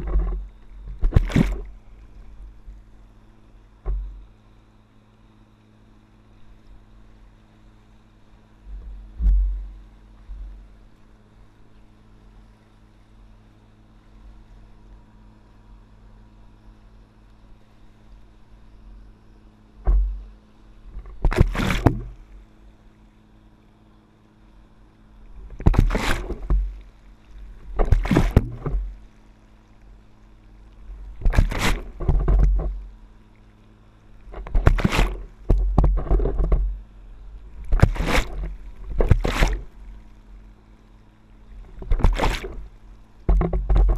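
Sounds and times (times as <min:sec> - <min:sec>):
water splashing and rushing: 0:00.0 - 0:02.9, 0:19.8 - 0:22.5, 0:25.2 - 0:40.6, 0:41.2 - 0:43.9
steady low hum: 0:00.0 - 0:43.9.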